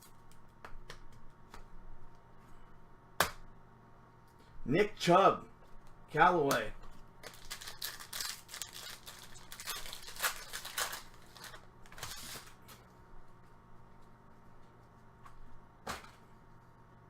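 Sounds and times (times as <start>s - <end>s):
cards and packaging rustling: 7.2s - 12.8s.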